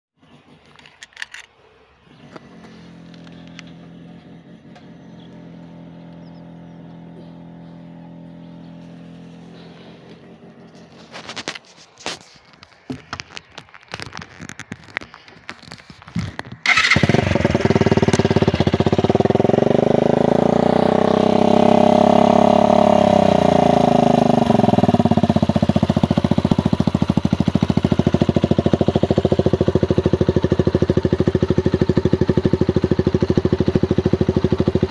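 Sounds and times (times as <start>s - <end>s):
motorcycle engine starting and idling: 0.2s - 34.9s.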